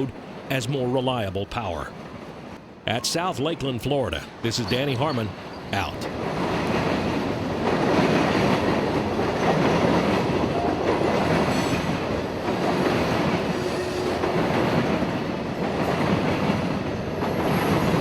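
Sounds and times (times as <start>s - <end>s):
train wheels rumbling on rail: 5.3s - 18.0s.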